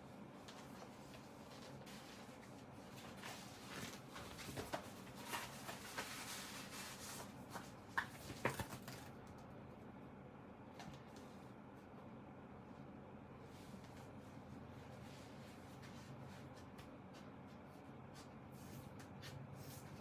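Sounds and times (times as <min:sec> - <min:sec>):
rustling and scraping of cover: 0:00.5 - 0:09.1.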